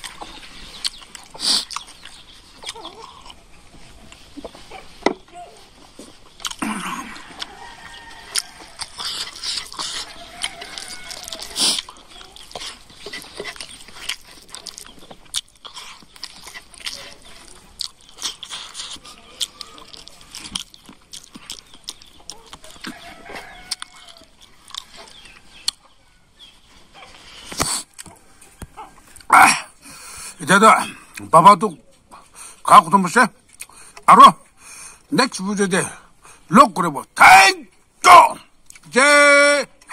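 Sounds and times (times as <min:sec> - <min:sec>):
lip smacks: 0:00.0 - 0:03.4, 0:06.4 - 0:06.7, 0:08.3 - 0:23.0, 0:27.4 - 0:29.3, 0:33.5 - 0:34.1
wet chewing: 0:00.0 - 0:31.3, 0:33.4 - 0:35.1, 0:38.6 - 0:38.9.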